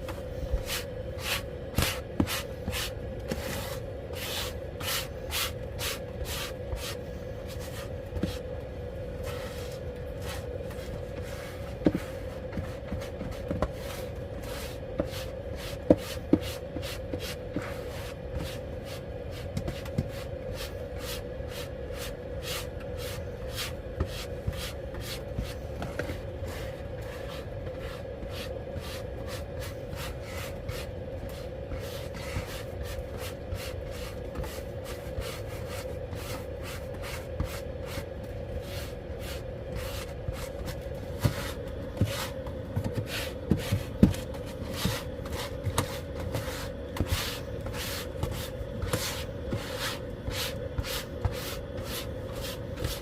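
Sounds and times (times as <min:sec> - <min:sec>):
steady hum: 0:00.0 - 0:53.0.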